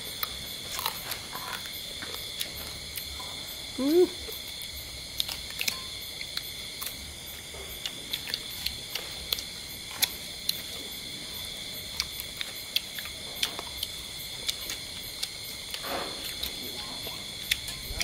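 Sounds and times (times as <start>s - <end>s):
wet chewing and lip-smacking: 4.3s - 10.8s, 11.4s - 18.0s.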